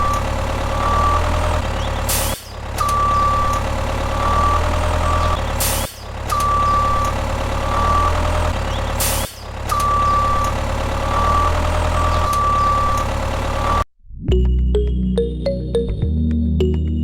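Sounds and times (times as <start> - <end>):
reversing beeper: 0.0 - 1.6, 2.8 - 5.4, 6.3 - 8.5, 9.7 - 13.8
heavy truck idling: 0.0 - 13.8
air brake hisses: 5.6 - 6.0, 9.0 - 9.4.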